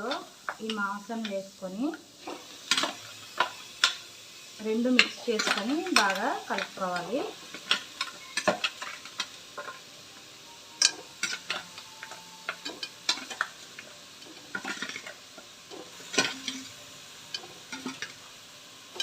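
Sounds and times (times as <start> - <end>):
light sizzle: 0.0 - 19.0
spatula scraping a frying pan: 10.8 - 18.2.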